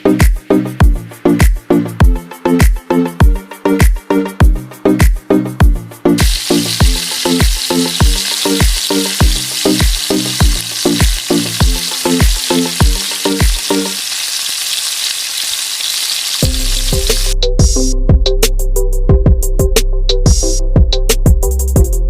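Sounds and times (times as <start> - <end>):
background music with a beat: 0.0 - 14.0, 16.4 - 22.0
food sizzling in hot oil: 6.2 - 17.4.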